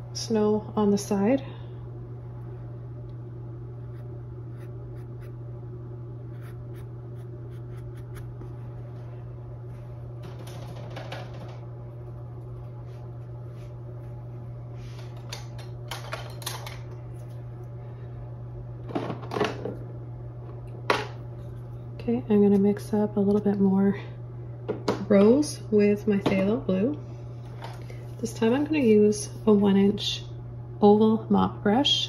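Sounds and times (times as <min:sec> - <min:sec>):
low electrical hum: 0:00.0 - 0:32.0
paintbrush scrubbing on canvas: 0:06.3 - 0:08.6.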